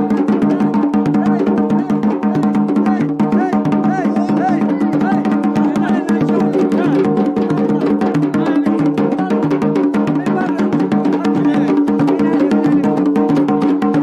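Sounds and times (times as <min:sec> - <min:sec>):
drums beating fast rhythm: 0:00.0 - 0:14.0.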